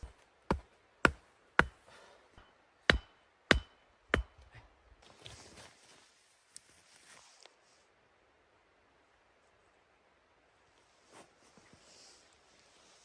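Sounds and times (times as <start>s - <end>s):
wood chopping strikes: 0.0s - 1.9s, 2.9s - 4.5s.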